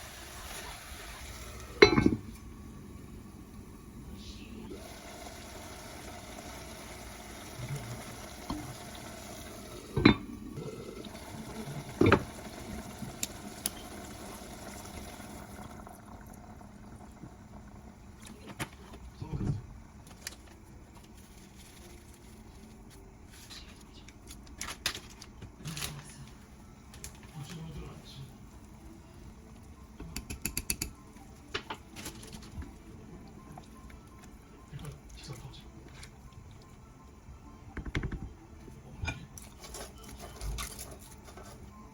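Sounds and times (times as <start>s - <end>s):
dishes clinking: 1.8s - 2.4s, 9.9s - 10.4s, 11.9s - 12.3s.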